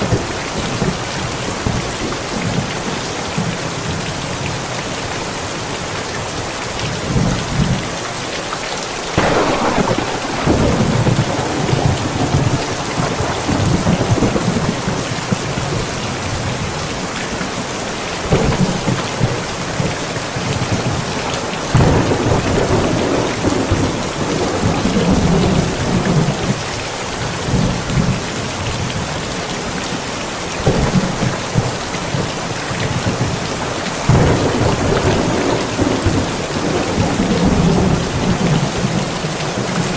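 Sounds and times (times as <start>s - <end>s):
rain falling: 0.0s - 39.9s
thunder rumbling: 9.2s - 17.4s, 18.2s - 29.0s, 30.5s - 39.9s.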